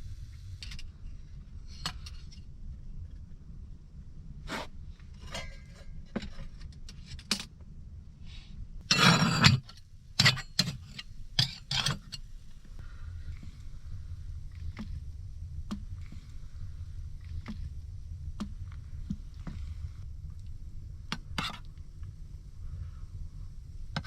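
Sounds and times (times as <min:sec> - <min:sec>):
kitchenware scraping: 0:05.2 - 0:06.6, 0:08.9 - 0:12.2.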